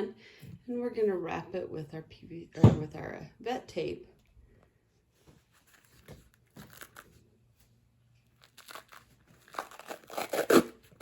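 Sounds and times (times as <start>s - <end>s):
bandage tape crinkling and tearing: 5.6s - 7.2s, 8.2s - 11.0s.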